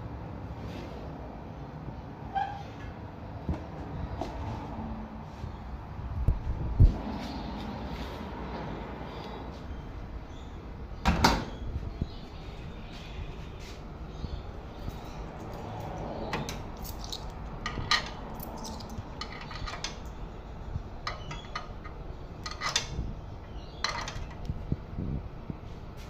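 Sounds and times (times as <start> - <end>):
coins clinking into machine: 16.8 - 20.0.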